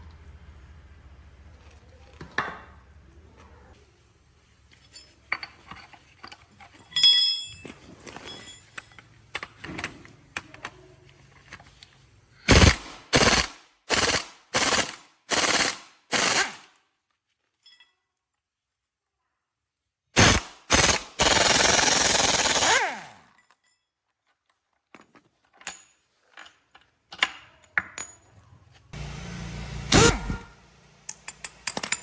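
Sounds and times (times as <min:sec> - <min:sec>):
metal tools clinking: 0:04.7 - 0:10.0, 0:17.5 - 0:18.2, 0:31.0 - 0:32.0
ringing metal clank: 0:06.9 - 0:07.7
pneumatic impact wrench bursts: 0:12.5 - 0:16.6, 0:20.2 - 0:23.2, 0:29.0 - 0:30.7.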